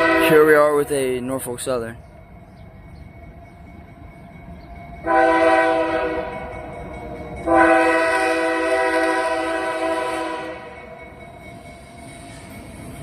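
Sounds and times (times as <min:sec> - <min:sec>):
locomotive air horn: 0:00.0 - 0:00.5, 0:05.1 - 0:06.4, 0:07.4 - 0:10.8
low rumble of train: 0:00.0 - 0:13.0.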